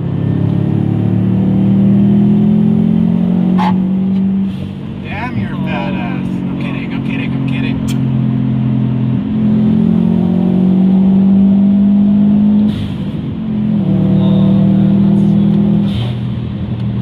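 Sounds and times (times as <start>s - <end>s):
car engine at full throttle: 0.0s - 17.0s
turbo and intake noise: 2.7s - 8.4s.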